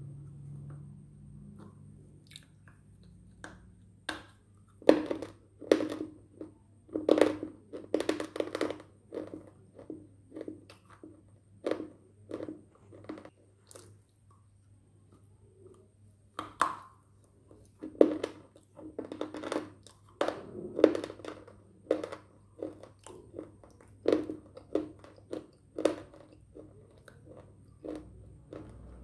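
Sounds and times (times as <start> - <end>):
crunchy chewing: 4.6 - 14.1, 17.2 - 29.0.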